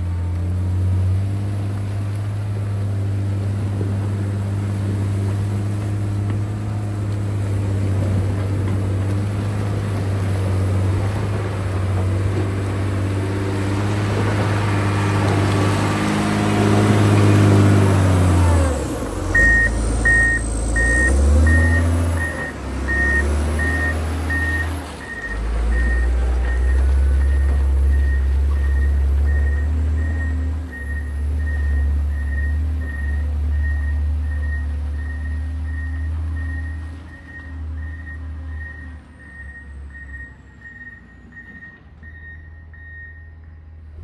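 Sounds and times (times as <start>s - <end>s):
diesel engine running and revving: 0.0s - 44.0s
reversing alarm beeping: 19.3s - 43.6s.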